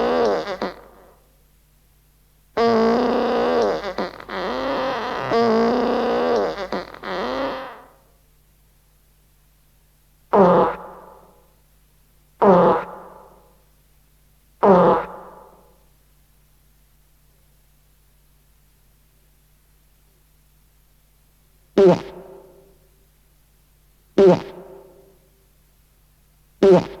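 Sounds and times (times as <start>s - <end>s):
fart sound effects: 0.0s - 1.1s, 2.6s - 7.9s, 21.8s - 22.2s, 24.2s - 24.7s, 26.6s - 27.0s.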